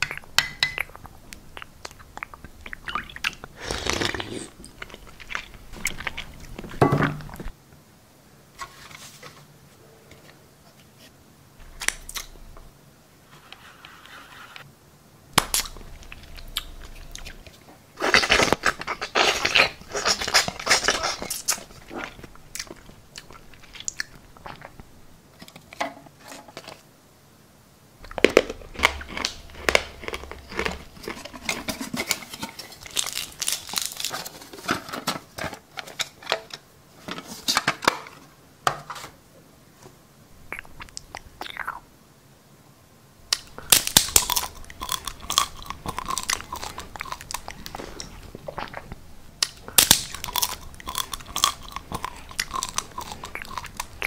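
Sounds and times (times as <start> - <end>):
crunching and chewing: 0.0 - 7.5, 15.4 - 25.8, 28.0 - 36.6, 43.3 - 54.0.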